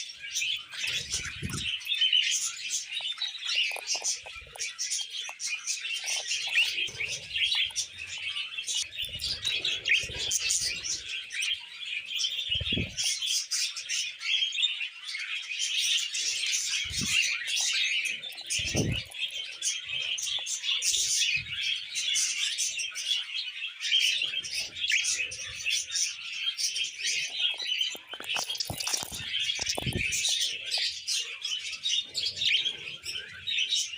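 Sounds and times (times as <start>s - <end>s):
budgerigars chattering warble: 0.0s - 33.9s.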